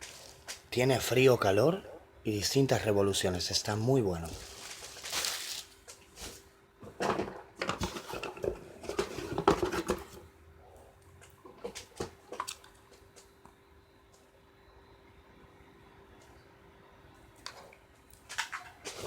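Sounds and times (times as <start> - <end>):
faint steady hum: 0.0 - 19.0
objects knocking and rattling: 6.8 - 10.2.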